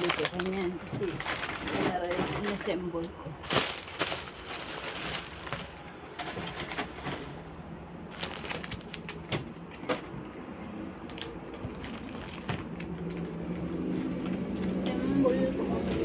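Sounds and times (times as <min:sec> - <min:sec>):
plastic fridge shelves clicking: 0:00.1 - 0:07.4.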